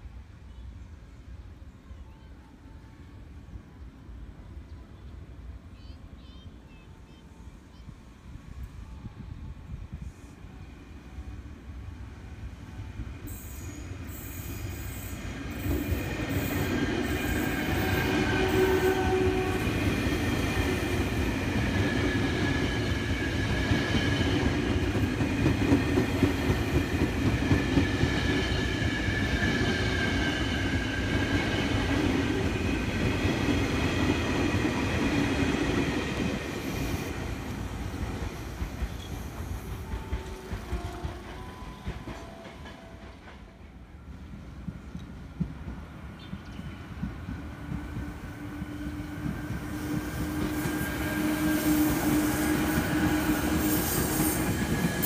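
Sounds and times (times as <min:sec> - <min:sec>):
train wheels squealing on rails: 0:12.7 - 0:44.2, 0:46.1 - 0:55.0
train running gear rumbling: 0:15.6 - 0:55.0.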